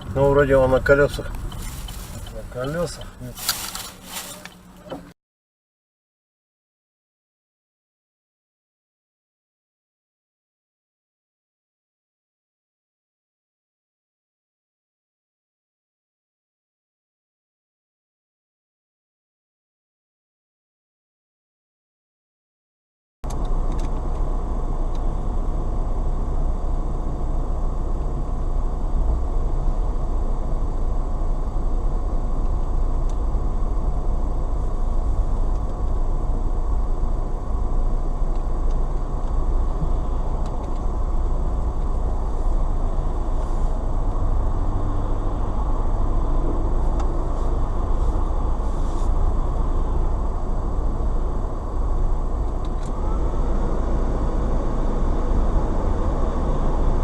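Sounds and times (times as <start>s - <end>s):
car road and engine noise: 0.0s - 5.2s, 23.2s - 57.0s.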